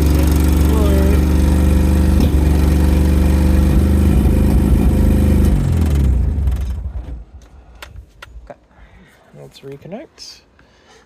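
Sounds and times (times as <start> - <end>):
car engine idling and shutting off: 0.0 - 8.1.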